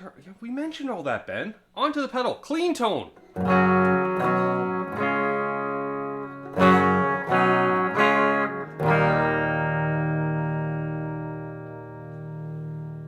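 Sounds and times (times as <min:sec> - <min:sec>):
electric guitar strummed chords: 0:03.3 - 0:13.0.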